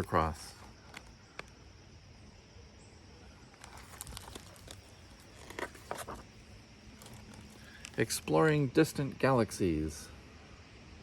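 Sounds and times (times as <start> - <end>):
paper page rustling: 3.6 - 8.0.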